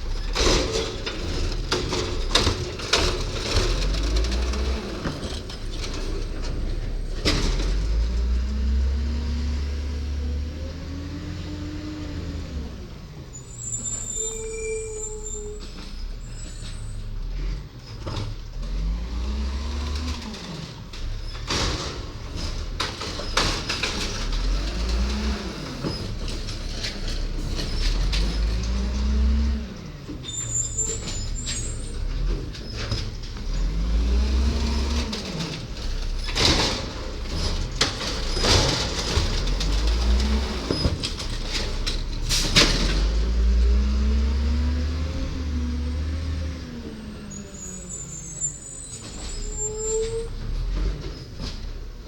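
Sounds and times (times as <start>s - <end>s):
garbage truck engine revving: 0.0s - 14.3s, 15.2s - 52.0s
knocks and clatter: 0.1s - 8.5s, 19.9s - 43.5s.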